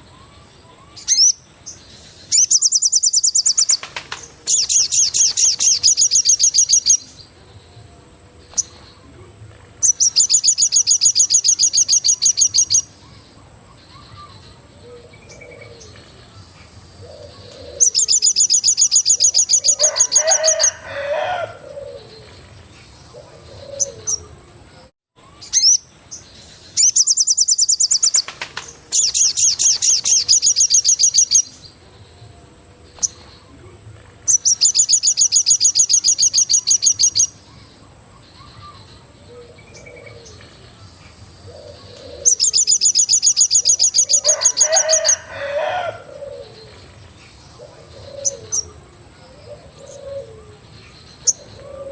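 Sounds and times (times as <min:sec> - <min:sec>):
lower bird calls: 0:00.0 - 0:07.3, 0:17.0 - 0:31.6, 0:41.5 - 0:51.9
bird pulsed trill: 0:00.0 - 0:09.1, 0:09.8 - 0:16.4, 0:17.0 - 0:33.6, 0:34.2 - 0:51.9.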